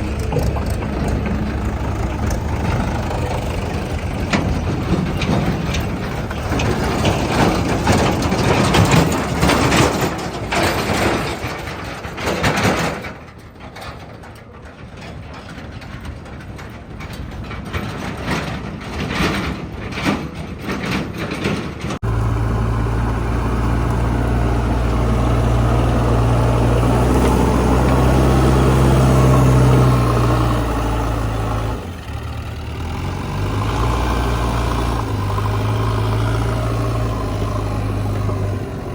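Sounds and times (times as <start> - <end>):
low diesel engine drone: 0.0 - 12.6, 21.4 - 38.9
clattering knocks: 0.0 - 31.8
diesel engine noise: 0.0 - 38.9.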